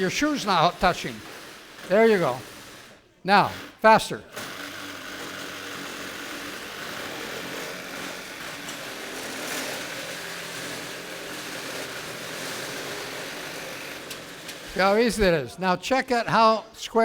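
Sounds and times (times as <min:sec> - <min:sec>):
reciprocating saw cutting wood: 0:00.0 - 0:15.8.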